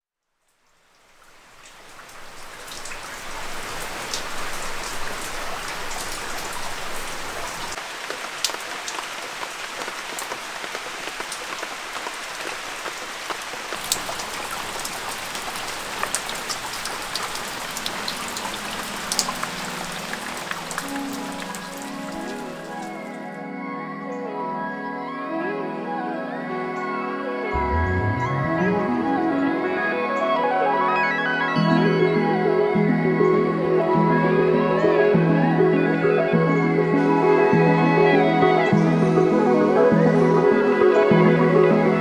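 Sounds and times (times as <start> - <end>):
steady rain falling: 0.5 - 23.3
raindrops ticking: 0.9 - 23.2
faint music: 17.8 - 31.2.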